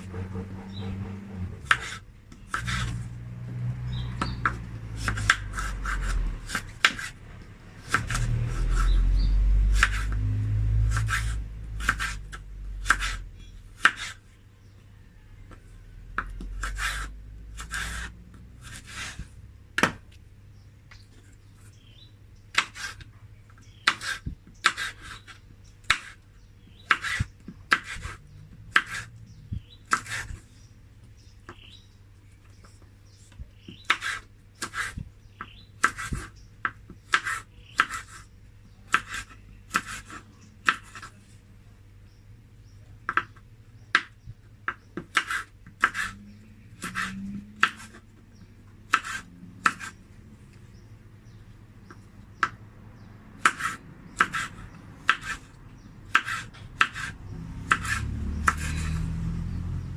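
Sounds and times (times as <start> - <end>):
knife chopping on cutting board: 0.1 - 3.0, 4.2 - 7.1, 9.7 - 10.2, 10.9 - 12.2, 12.8 - 13.2, 13.8 - 14.2, 26.9 - 29.1, 35.8 - 38.2, 38.9 - 41.1, 43.1 - 46.2, 46.8 - 48.0, 48.9 - 50.0, 53.4 - 55.5, 56.1 - 58.9.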